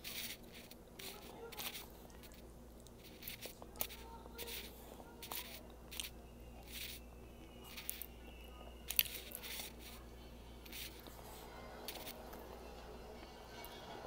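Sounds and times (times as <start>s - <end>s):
person chewing food: 0.0s - 10.0s.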